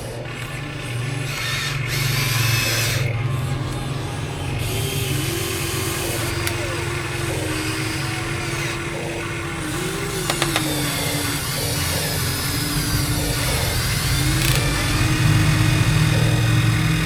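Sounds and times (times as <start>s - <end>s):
toy machine engine rumble and whine: 0.0s - 17.0s
sharp clicks: 5.2s - 7.6s, 9.7s - 15.1s.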